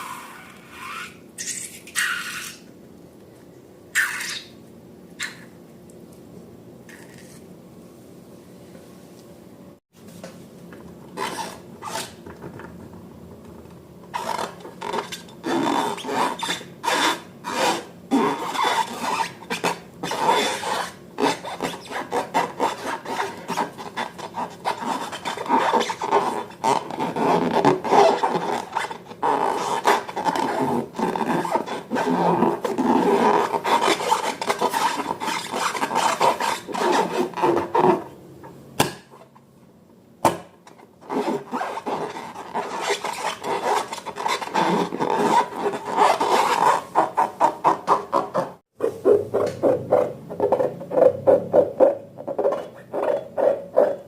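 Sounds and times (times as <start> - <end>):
slime rubbing and scraping: 14.2 - 38.1, 41.0 - 54.0.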